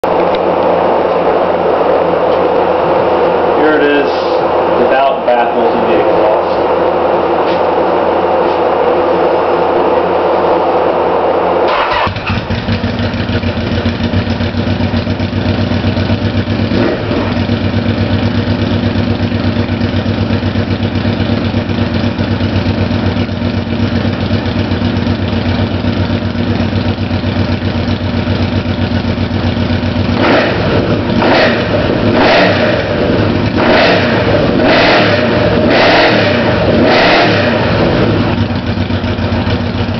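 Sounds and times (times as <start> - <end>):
engine throttle blips: 0.0 - 39.9
motorcycle engine idling: 11.7 - 39.9.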